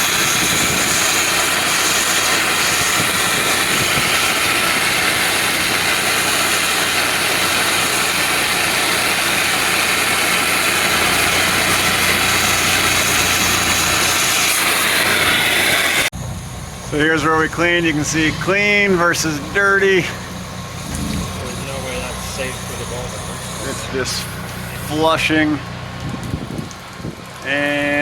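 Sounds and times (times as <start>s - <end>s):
high-pressure water spray hiss: 0.0s - 16.1s, 19.8s - 25.5s
pressure washer engine drone: 0.0s - 28.0s.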